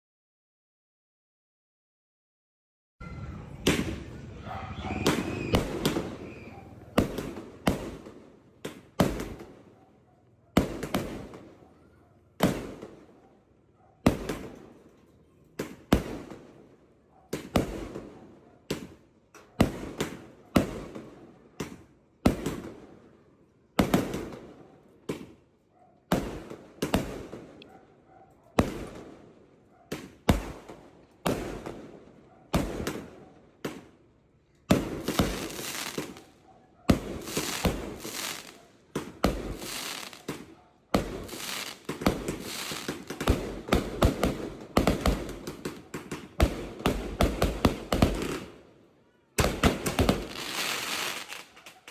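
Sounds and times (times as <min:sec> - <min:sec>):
firework bangs echoing: 0:03.0 - 0:09.7, 0:10.6 - 0:11.6, 0:12.4 - 0:13.1, 0:14.0 - 0:14.7, 0:26.1 - 0:27.6, 0:28.6 - 0:29.3, 0:29.9 - 0:33.9, 0:34.7 - 0:48.6, 0:49.4 - 0:51.7.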